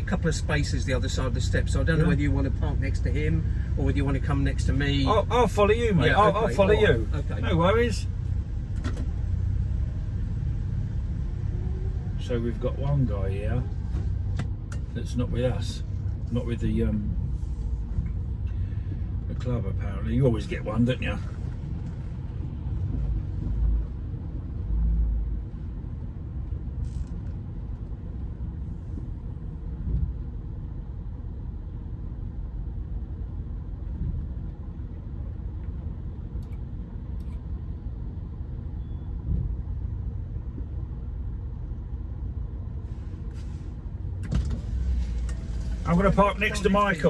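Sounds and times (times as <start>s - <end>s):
car rumbling slowly: 0.0s - 47.0s.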